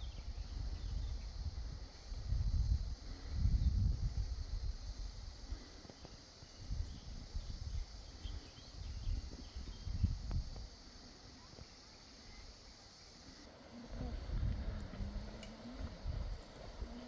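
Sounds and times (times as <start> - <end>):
wind rumbling on microphone: 0.0 - 10.8, 13.7 - 17.0
steady high hiss: 0.0 - 17.0.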